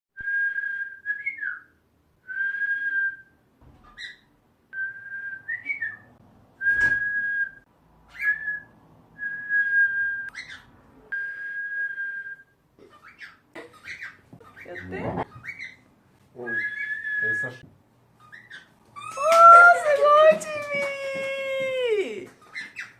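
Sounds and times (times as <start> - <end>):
cockatiel whistling: 4.8 - 10.6, 16.4 - 17.6.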